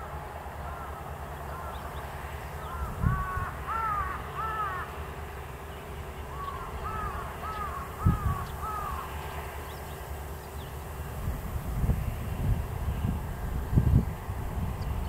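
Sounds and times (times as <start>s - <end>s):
bird calling: 0.6s - 11.1s.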